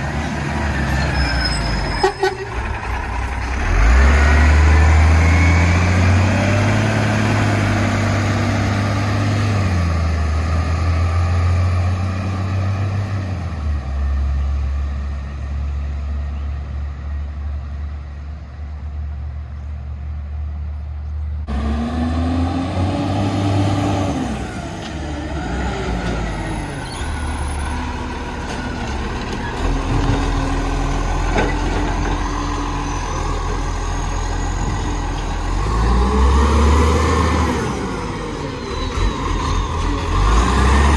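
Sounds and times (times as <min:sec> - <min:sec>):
garbage truck engine running: 0:21.5 - 0:40.9.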